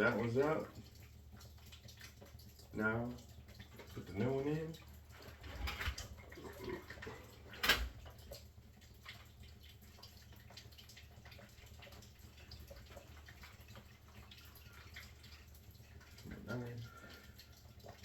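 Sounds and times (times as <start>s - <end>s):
water dripping: 0.0s - 18.0s.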